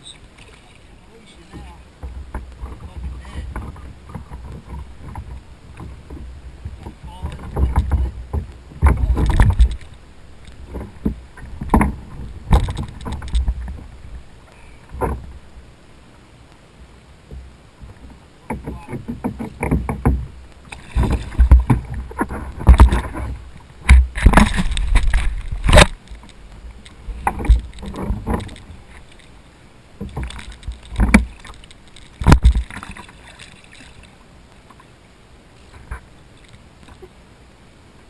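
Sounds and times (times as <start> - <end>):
water splashes: 0.0 - 38.0
knocks and bumps on kayak: 1.4 - 9.9, 10.6 - 13.9, 14.9 - 15.4, 17.3 - 26.0, 27.0 - 29.0, 30.0 - 33.5.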